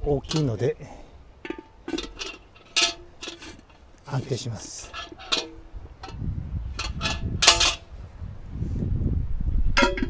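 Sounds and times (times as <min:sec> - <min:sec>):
pot knocking against metal trivet: 0:00.0 - 0:00.6, 0:01.4 - 0:07.9, 0:09.8 - 0:10.0.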